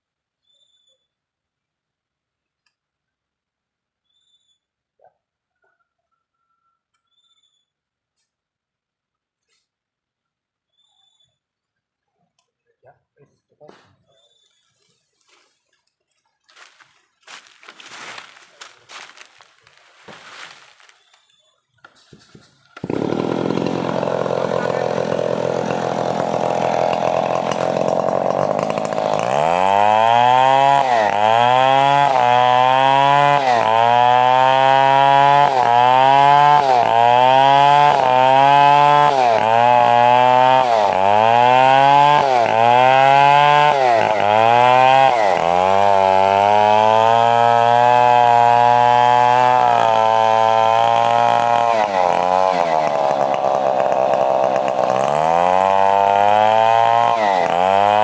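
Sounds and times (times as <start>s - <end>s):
chainsaw cutting wood: 16.5s - 58.0s.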